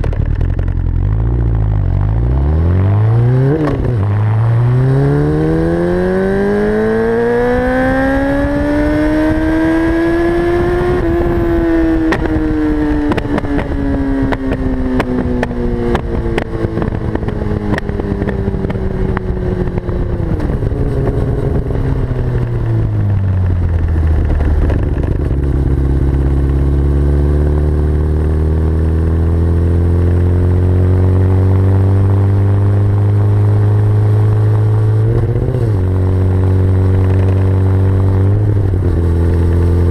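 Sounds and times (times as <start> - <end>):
exhaust pops and crackles: 0.0 - 2.1, 12.0 - 26.9, 36.7 - 39.9
motorcycle engine revving: 0.0 - 39.9.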